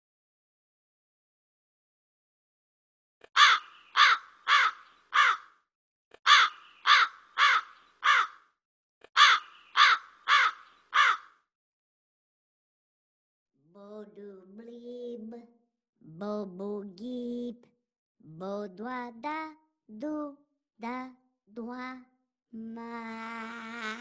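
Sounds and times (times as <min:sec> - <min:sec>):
bird cawing harshly: 0:03.4 - 0:05.6, 0:06.3 - 0:08.5, 0:09.2 - 0:11.4.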